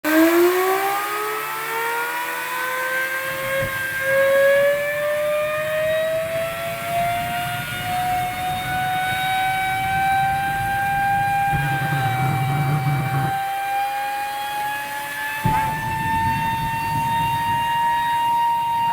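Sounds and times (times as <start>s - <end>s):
jet turbine engine whine: 0.0s - 18.9s
rumbling rush: 5.4s - 13.4s, 15.4s - 18.3s.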